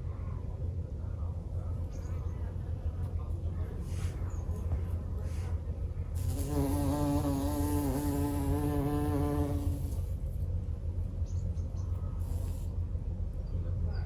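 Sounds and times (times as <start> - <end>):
steady low rumble: 0.0 - 6.3, 9.3 - 14.0
flying insect buzzing: 6.2 - 10.1.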